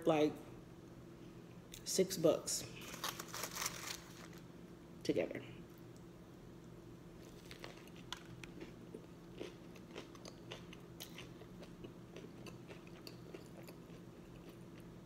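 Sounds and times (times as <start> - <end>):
chewing with small crunches: 5.9 - 15.0.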